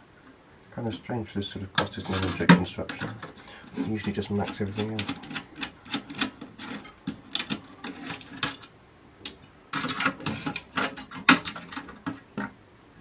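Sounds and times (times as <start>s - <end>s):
metal parts clicking and rattling: 1.8s - 8.7s, 9.3s - 12.5s.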